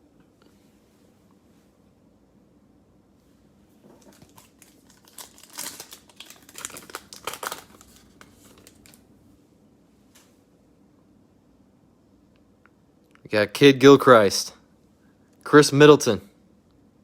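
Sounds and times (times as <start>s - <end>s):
plastic wrapper tearing and crinkling: 3.9s - 9.0s.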